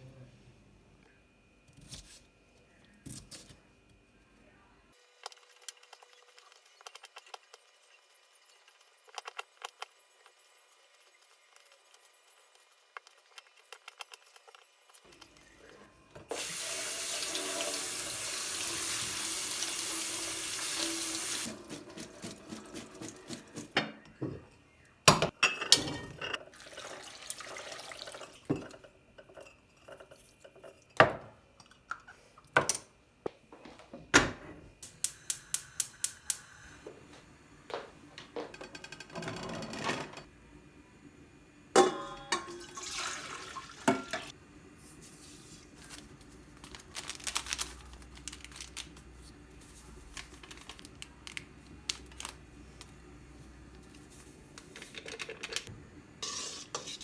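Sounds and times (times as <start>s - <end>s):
dishes and utensils clinking: 25.1s - 26.5s, 41.8s - 43.2s, 43.8s - 44.3s.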